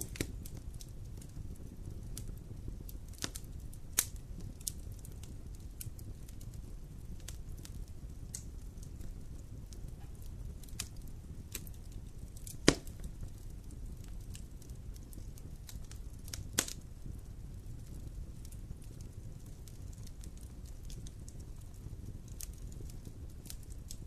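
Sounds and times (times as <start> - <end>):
campfire crackling: 0.0 - 24.0
loud sharp pop: 12.6 - 13.0.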